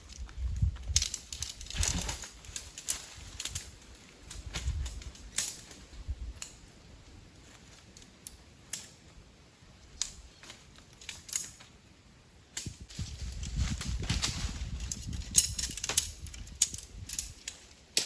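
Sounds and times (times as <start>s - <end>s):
dry wood snapping and cracking: 0.1s - 5.8s, 12.6s - 18.0s.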